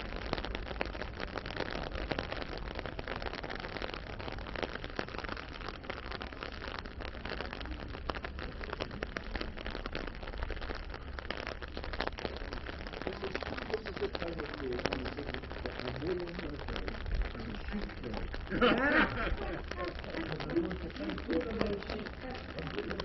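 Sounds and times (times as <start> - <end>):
rain pattering: 0.0 - 23.0.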